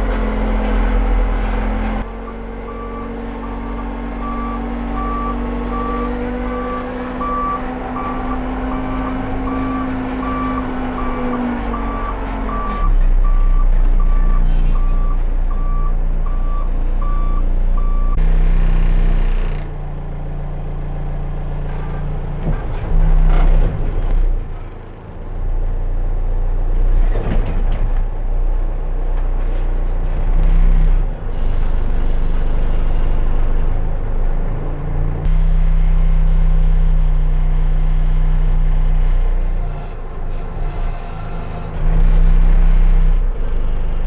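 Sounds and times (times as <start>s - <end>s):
diesel engine running: 0.0s - 44.0s
reverse alarm beeping: 2.2s - 18.2s, 43.4s - 44.0s.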